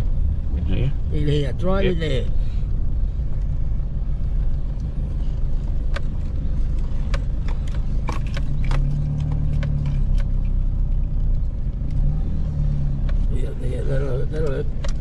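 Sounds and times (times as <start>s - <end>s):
vehicle rumbling over rough ground: 0.0s - 15.0s
sharp clicks and knocks: 5.8s - 10.6s, 14.7s - 15.0s.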